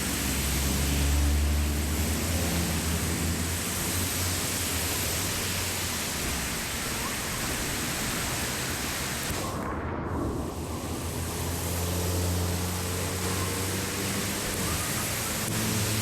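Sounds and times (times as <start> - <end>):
water rushing into a drain: 0.0 - 9.6, 10.4 - 16.0
low rumble: 9.3 - 13.0.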